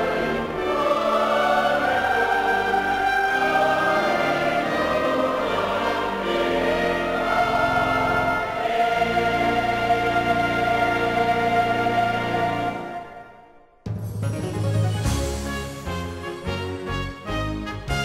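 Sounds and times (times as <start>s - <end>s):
choir and congregation singing hymn: 0.0s - 13.4s
instrumental accompaniment: 0.0s - 18.0s.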